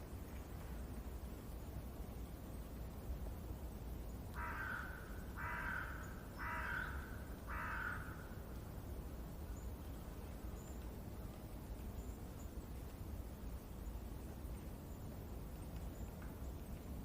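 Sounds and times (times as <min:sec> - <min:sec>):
crow cawing: 0:04.4 - 0:08.4.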